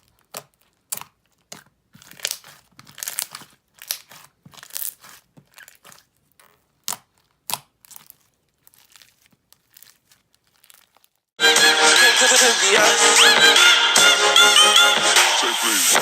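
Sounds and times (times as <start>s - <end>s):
slime squished by hand: 0.0s - 11.2s.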